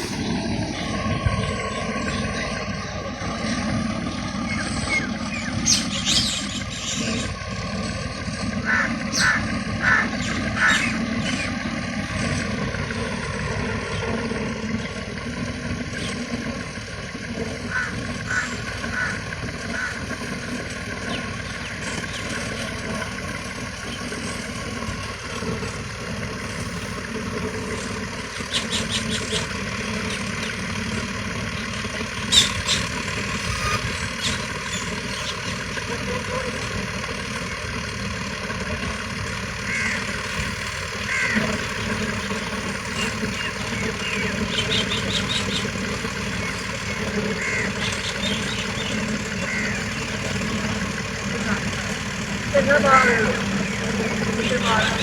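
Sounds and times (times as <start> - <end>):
low rumble: 0.0 - 5.6
bird chirps: 0.0 - 7.4, 31.5 - 35.6, 41.2 - 51.5
sharp bird call: 8.6 - 11.5.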